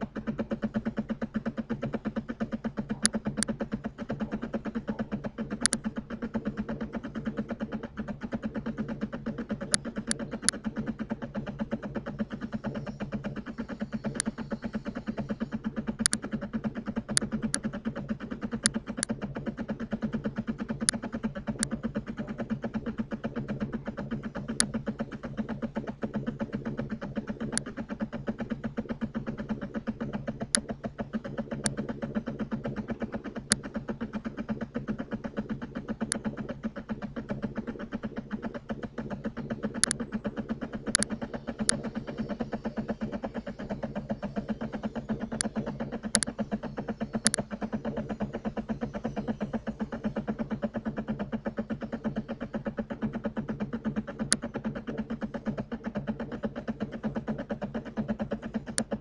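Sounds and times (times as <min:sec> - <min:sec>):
low buzzing hum: 0:00.0 - 0:59.0
sharp clicks: 0:05.5 - 0:05.9, 0:14.0 - 0:14.4, 0:16.0 - 0:16.3, 0:39.4 - 0:40.2, 0:40.8 - 0:43.2, 0:44.8 - 0:46.4.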